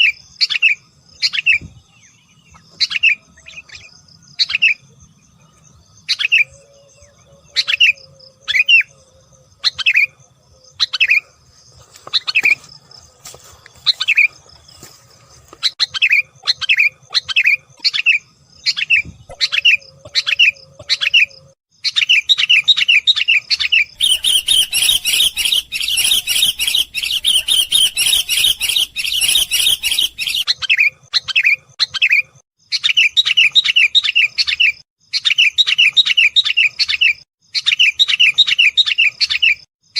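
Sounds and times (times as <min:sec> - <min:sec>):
bulbul calls and chatter: 0:12.0 - 0:39.5.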